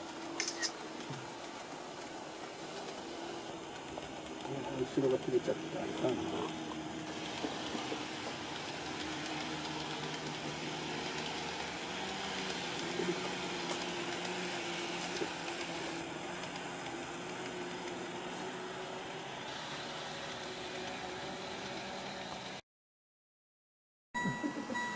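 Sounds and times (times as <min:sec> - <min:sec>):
model train motor hum: 0:00.0 - 0:22.6
wheel and rail noise: 0:00.0 - 0:22.6.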